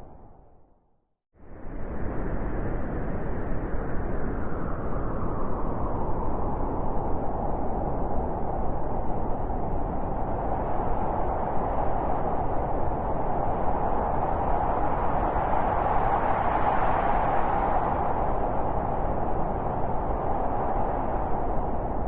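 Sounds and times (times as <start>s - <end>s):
blizzard wind howling: 1.4s - 22.0s.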